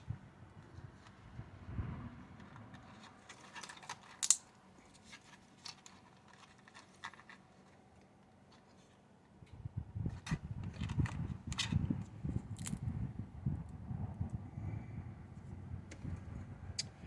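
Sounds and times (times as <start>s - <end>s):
clicks and taps of model parts: 4.2s - 4.4s.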